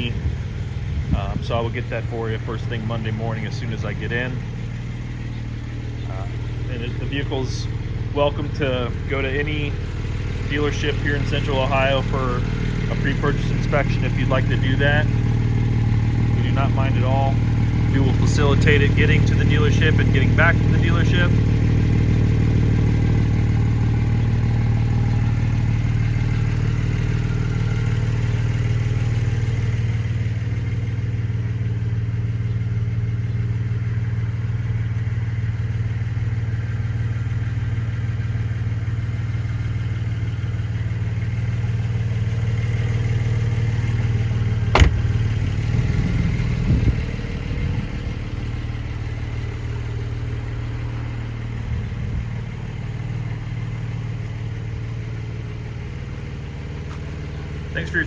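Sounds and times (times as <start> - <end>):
car engine idling: 0.0 - 58.0
faint knocks: 44.8 - 45.4.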